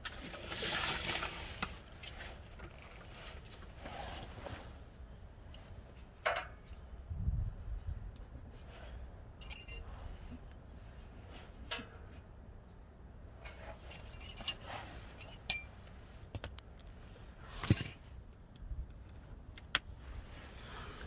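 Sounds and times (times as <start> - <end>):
metal tools clinking: 9.4 - 9.9, 13.8 - 15.8, 17.6 - 18.1.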